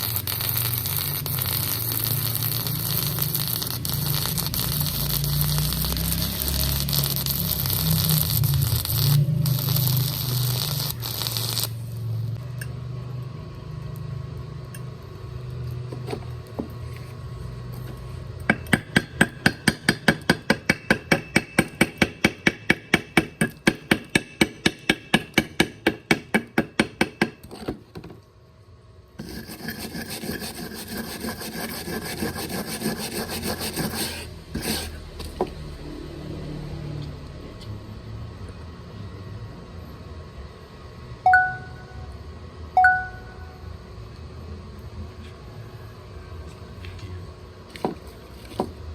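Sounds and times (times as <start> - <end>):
welding arc crackling and hissing: 0.0 - 12.4
scraping strokes on metal: 29.2 - 35.4.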